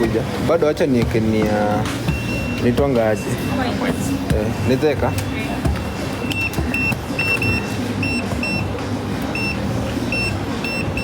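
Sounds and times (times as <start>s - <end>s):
short electronic beeps: 4.6s - 8.7s, 9.3s - 11.0s.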